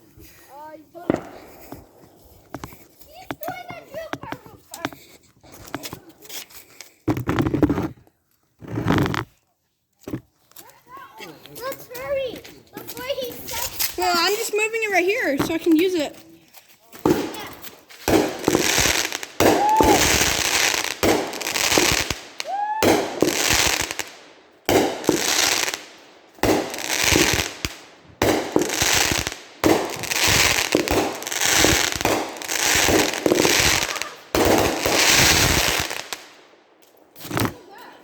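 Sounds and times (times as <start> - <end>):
fireworks crackling bursts: 0.5 - 5.1, 12.0 - 16.1, 17.0 - 37.7.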